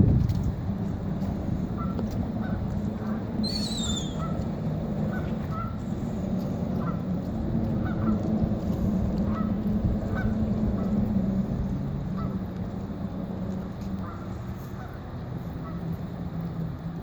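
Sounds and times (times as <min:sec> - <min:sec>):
low rumble: 0:00.0 - 0:17.0
falling warbling whistle: 0:03.4 - 0:04.3
honking bird calls: 0:03.4 - 0:04.4.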